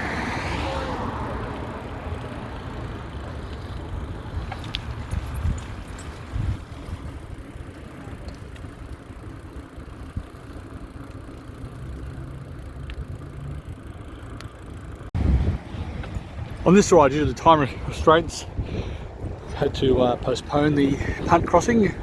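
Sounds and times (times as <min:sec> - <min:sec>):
bicycle tyres on path: 0:00.0 - 0:22.0
wind on microphone: 0:04.3 - 0:07.4, 0:15.2 - 0:22.0.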